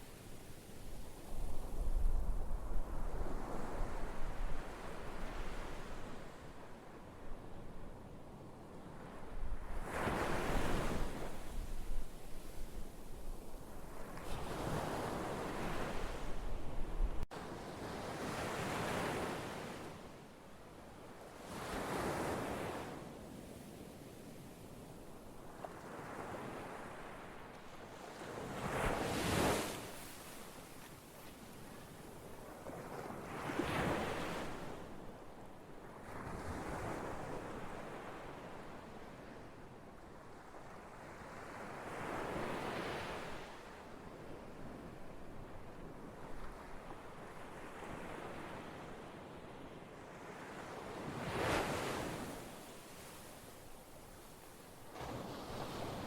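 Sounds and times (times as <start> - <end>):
ocean waves crashing on shore: 28.1 - 30.9, 50.2 - 56.0
ocean waves washing on shore: 46.2 - 56.0.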